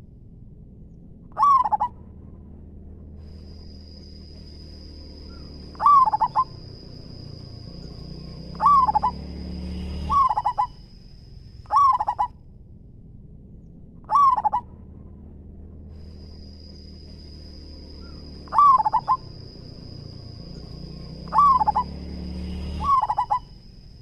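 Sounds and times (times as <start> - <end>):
dove cooing: 1.4 - 1.9, 5.3 - 6.9, 8.4 - 9.3, 10.0 - 10.8, 11.7 - 12.3, 14.1 - 14.6, 18.0 - 20.0, 21.0 - 22.0, 22.7 - 23.5.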